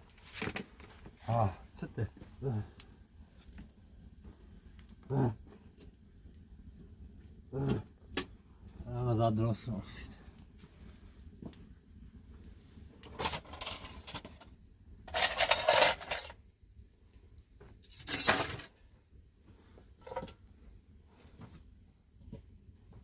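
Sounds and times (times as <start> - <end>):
dishes and utensils clattering: 13.2 - 14.4, 15.1 - 16.4, 17.9 - 18.7.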